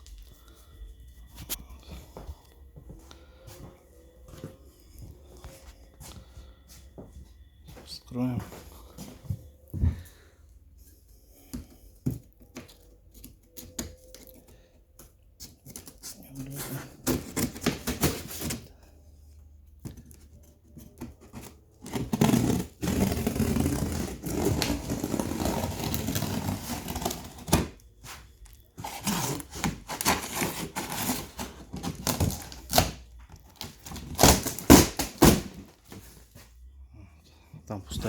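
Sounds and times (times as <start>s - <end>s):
cardboard tearing and rustling: 21.1s - 27.8s, 28.8s - 36.2s.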